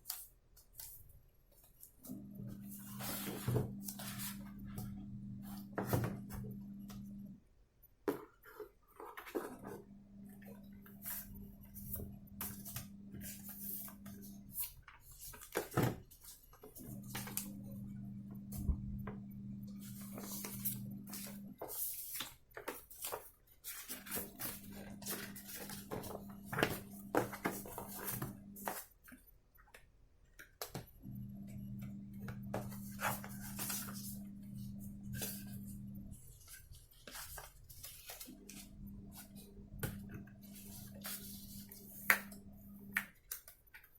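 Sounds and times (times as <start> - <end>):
steady low hum: 2.1 - 7.4, 16.8 - 21.6, 31.0 - 36.8, 38.2 - 43.0
clicks and taps of handling items: 25.6 - 31.0.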